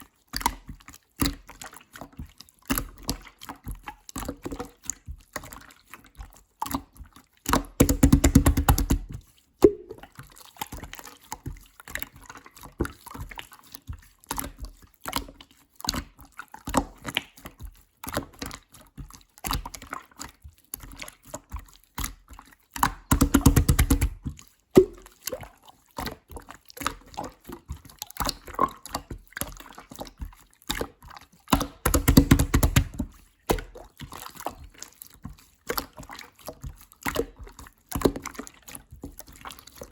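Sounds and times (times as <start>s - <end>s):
slime squished wet clicking: 7.5s - 10.1s, 22.8s - 25.4s, 31.5s - 33.8s
slime rapid crackling: 7.8s - 9.0s, 23.1s - 24.2s, 31.8s - 33.0s.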